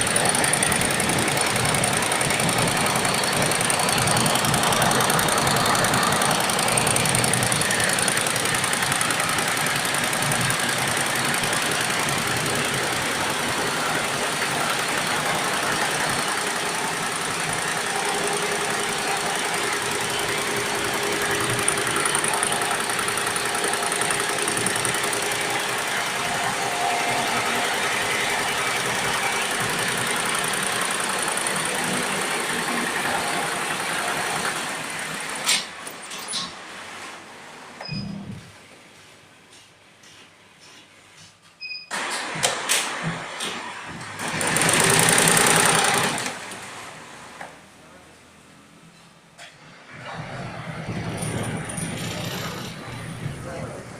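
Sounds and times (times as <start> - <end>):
embroidery machine clattering: 0.0 - 34.6, 44.0 - 46.4.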